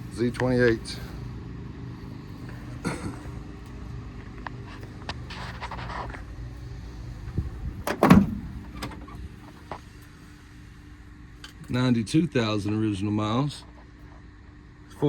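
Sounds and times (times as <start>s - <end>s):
steady low hum: 0.0s - 15.0s
car door latch click: 7.8s - 9.1s
car door thump: 7.8s - 9.1s
car door clicks and rattles: 7.8s - 9.2s.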